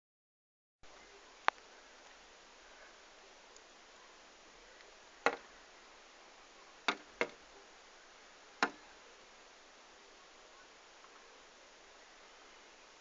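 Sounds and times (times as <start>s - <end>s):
faint room hiss: 0.8s - 13.0s
bird tapping at window glass: 5.2s - 5.5s, 6.9s - 7.4s, 8.6s - 8.8s.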